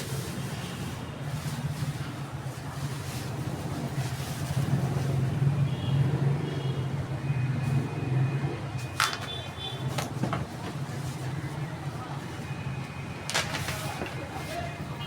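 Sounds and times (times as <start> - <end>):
bubble wrap crackling: 13.1 - 14.8.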